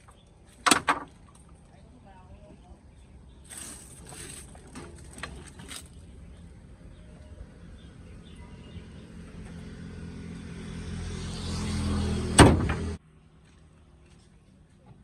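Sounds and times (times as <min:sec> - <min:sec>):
vehicle engine running: 0:05.7 - 0:13.6.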